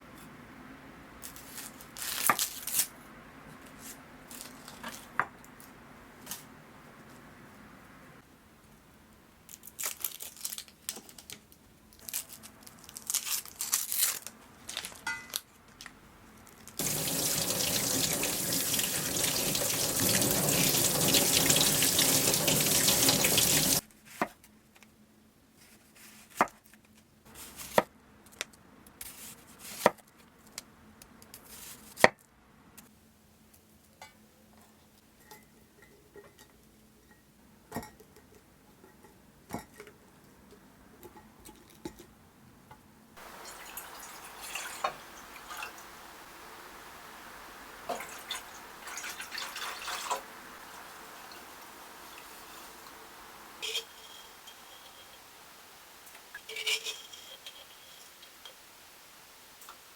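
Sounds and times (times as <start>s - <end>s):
kitchen tap running: 16.8s - 23.8s, 43.2s - 55.4s.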